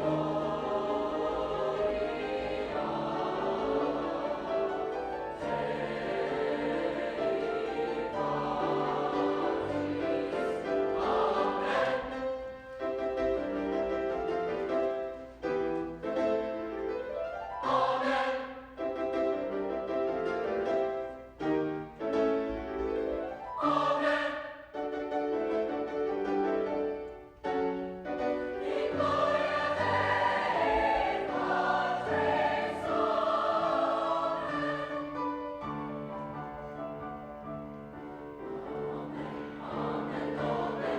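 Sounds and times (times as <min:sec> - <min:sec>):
choir singing chords: 0:00.0 - 0:14.1, 0:17.5 - 0:19.5, 0:23.1 - 0:25.2, 0:28.2 - 0:37.0, 0:37.6 - 0:40.9.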